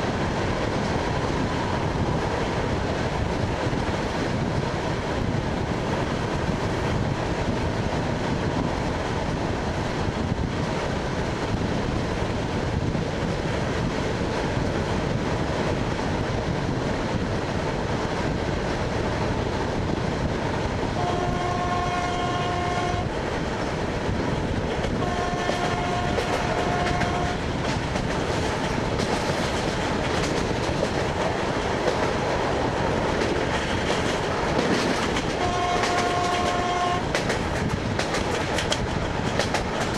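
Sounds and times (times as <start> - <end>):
train rumbling on rails: 0.0 - 39.9
two-note train horn: 21.0 - 23.1, 25.0 - 27.4, 35.4 - 37.1.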